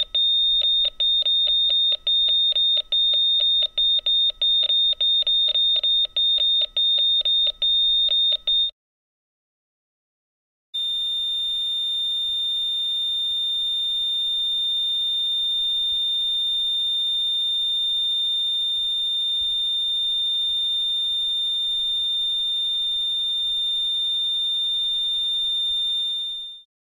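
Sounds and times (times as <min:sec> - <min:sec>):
heart monitor beeping: 0:00.0 - 0:08.7
continuous flatline tone: 0:10.8 - 0:26.7.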